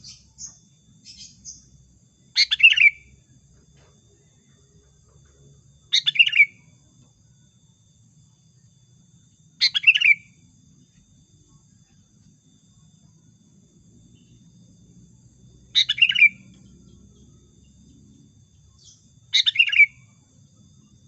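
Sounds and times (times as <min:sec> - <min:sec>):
bird chattering call: 0:02.4 - 0:03.0, 0:15.8 - 0:16.4.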